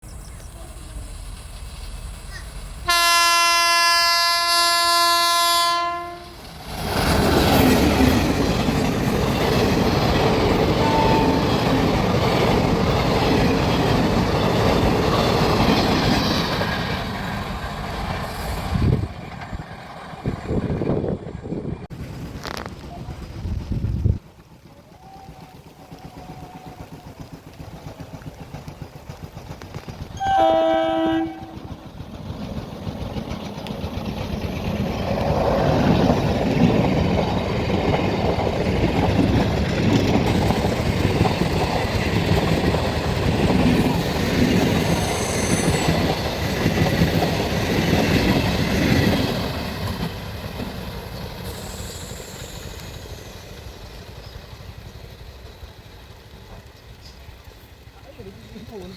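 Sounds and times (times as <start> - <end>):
trains rumbling past: 0.0 - 58.9
train horn blast: 2.8 - 6.4, 10.8 - 11.6, 30.2 - 31.7.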